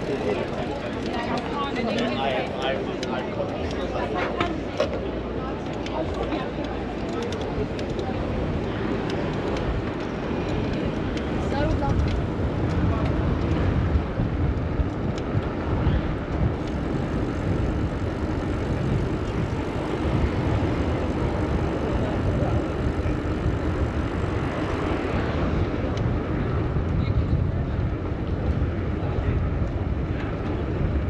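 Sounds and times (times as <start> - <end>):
street traffic rumble: 0.0 - 31.0.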